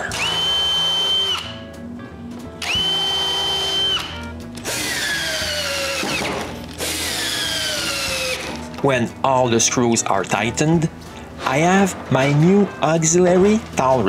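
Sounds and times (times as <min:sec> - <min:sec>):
power drill motor whine: 0:00.0 - 0:01.6, 0:02.6 - 0:08.6.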